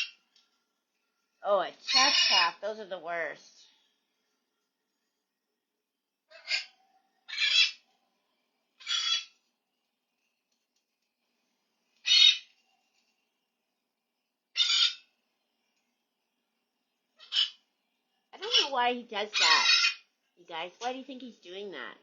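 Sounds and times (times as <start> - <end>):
parrot screeching: 0.0 - 0.2, 1.8 - 2.6, 6.3 - 7.9, 8.8 - 9.4, 12.0 - 12.6, 14.5 - 15.1, 17.2 - 17.6, 18.4 - 20.1.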